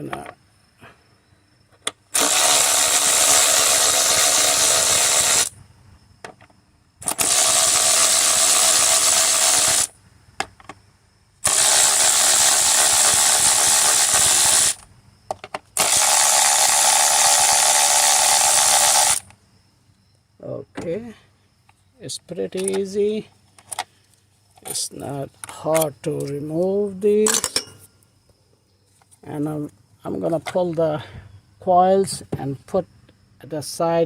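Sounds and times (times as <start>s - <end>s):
cordless power tool spinning bolts: 2.1s - 5.5s, 7.0s - 9.9s, 11.4s - 14.8s, 15.8s - 19.3s.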